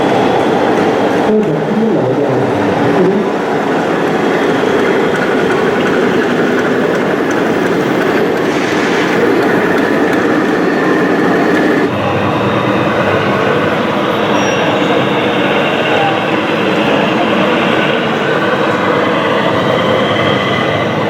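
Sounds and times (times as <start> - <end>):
electric motors whining: 4.8 - 21.0.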